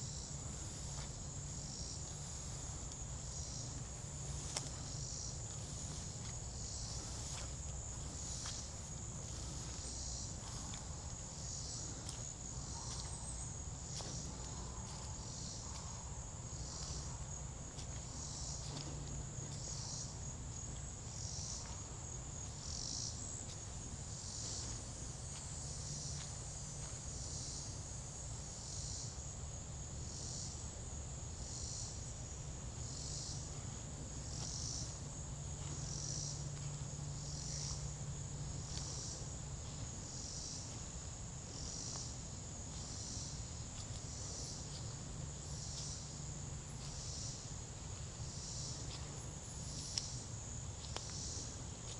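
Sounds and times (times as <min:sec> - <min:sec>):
insect pulsed call: 0:00.0 - 0:17.1.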